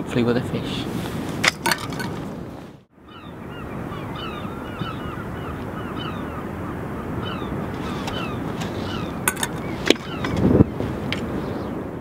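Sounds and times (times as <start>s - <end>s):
sea: 0.0s - 12.0s
wind: 0.0s - 12.0s
birds chirping: 2.9s - 11.9s.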